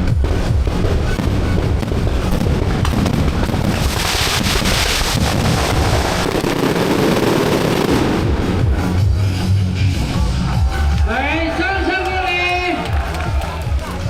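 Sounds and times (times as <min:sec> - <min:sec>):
fireworks crackling hiss: 0:00.0 - 0:09.0
fireworks low bangs: 0:00.0 - 0:10.2.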